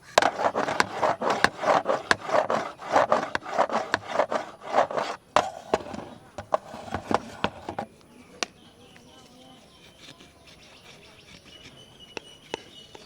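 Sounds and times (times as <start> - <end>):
scratching on plastic ring: 0.0 - 7.9.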